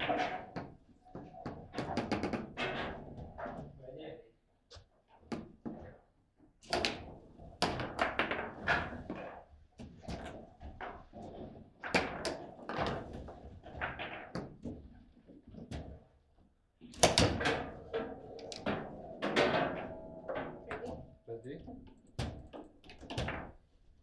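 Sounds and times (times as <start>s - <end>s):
rods and handles clattering: 17.0s - 23.1s.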